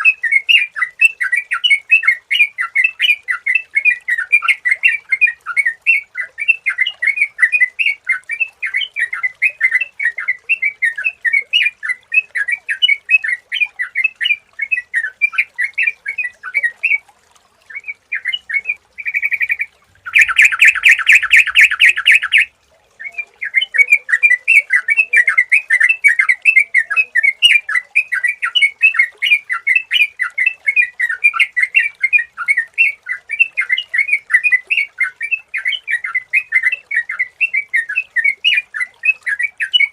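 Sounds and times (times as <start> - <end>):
bird chattering chirps: 19.0 - 22.5.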